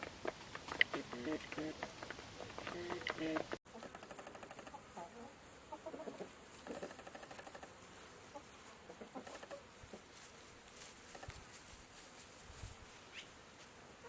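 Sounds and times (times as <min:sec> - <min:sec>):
chickens clucking: 0:00.0 - 0:10.2.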